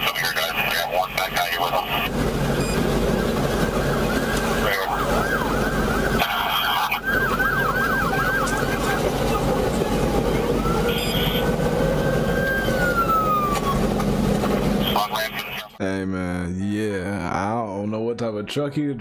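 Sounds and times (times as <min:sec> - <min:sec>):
vehicle and road noise: 0:00.0 - 0:15.8
police siren: 0:00.7 - 0:15.7.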